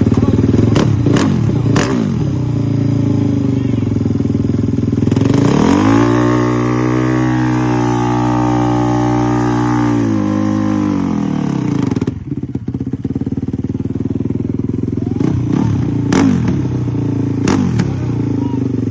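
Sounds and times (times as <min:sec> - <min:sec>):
dirt bike engine revving: 0:00.0 - 0:18.9.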